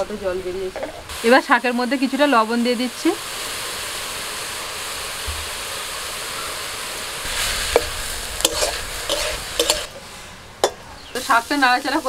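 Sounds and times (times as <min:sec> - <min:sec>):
greens sizzling in oil: 0:00.0 - 0:12.0
metal spatula scraping pan: 0:07.3 - 0:10.8.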